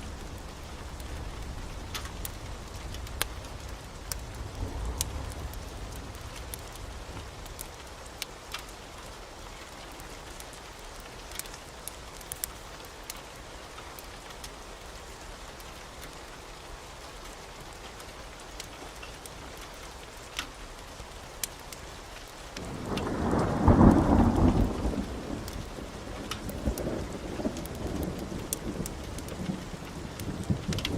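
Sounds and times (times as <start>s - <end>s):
thunder rumble: 0.0s - 7.7s, 22.6s - 30.9s
steady rain: 0.0s - 30.9s.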